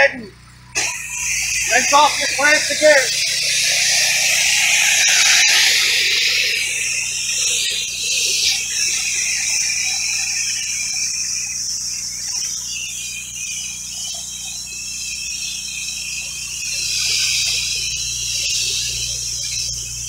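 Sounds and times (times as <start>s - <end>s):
pump humming: 0.0s - 20.0s
water spray hissing: 0.6s - 20.0s.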